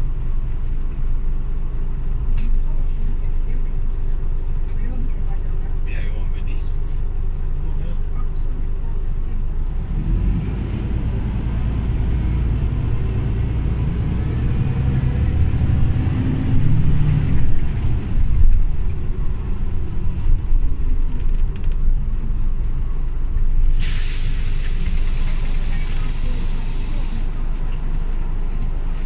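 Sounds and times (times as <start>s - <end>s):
bus engine running: 0.0s - 29.0s
compressed air hiss: 23.8s - 27.4s.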